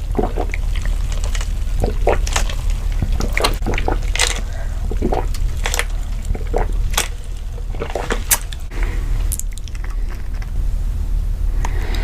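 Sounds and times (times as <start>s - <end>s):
wet chewing sounds: 0.0s - 10.5s
low hum: 0.0s - 12.0s.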